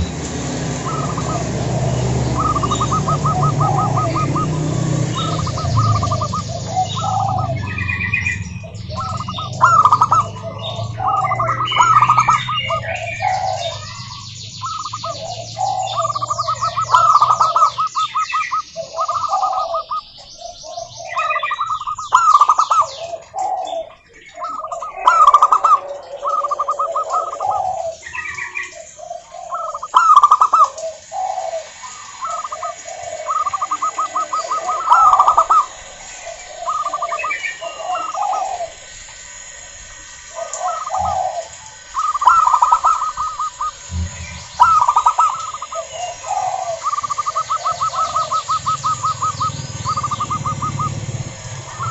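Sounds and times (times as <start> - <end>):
low rumble: 0.0 - 14.6, 43.8 - 44.8
birds chirping: 0.0 - 51.9
doves cooing: 0.0 - 51.9.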